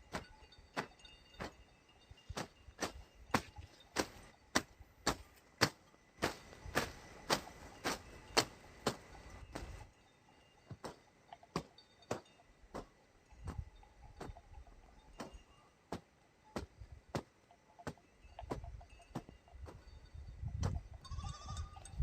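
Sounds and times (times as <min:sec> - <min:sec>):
hand tool chopping ground: 0:00.0 - 0:01.6, 0:02.2 - 0:09.9, 0:10.7 - 0:13.6, 0:15.2 - 0:19.8.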